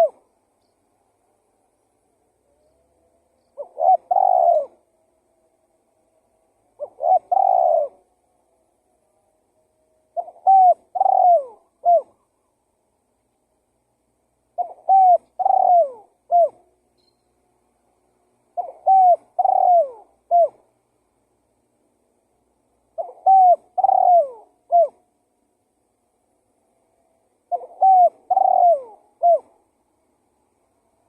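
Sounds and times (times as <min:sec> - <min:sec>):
dove cooing: 0:00.0 - 0:00.3, 0:03.6 - 0:04.9, 0:06.8 - 0:08.1, 0:10.1 - 0:12.5, 0:14.5 - 0:16.8, 0:18.5 - 0:20.7, 0:22.9 - 0:25.0, 0:27.4 - 0:29.6.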